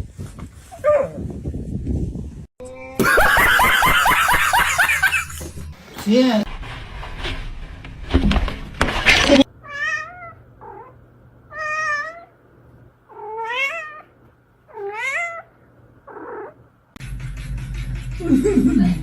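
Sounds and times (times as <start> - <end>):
cat meowing: 9.6 - 12.3, 13.1 - 14.1, 14.7 - 15.5.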